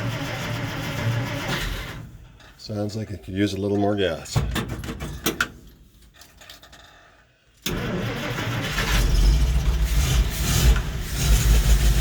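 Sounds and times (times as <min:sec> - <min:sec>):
truck engine cranking and starting: 0:00.0 - 0:02.4, 0:07.6 - 0:12.0.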